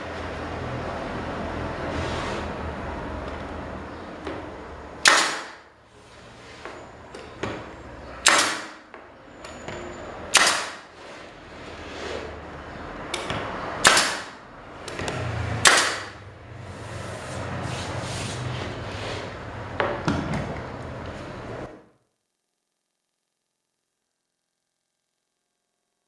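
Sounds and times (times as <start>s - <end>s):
hard strikes on wood: 5.0s - 5.6s, 8.2s - 8.8s, 10.3s - 10.8s, 13.2s - 14.4s, 15.0s - 16.2s.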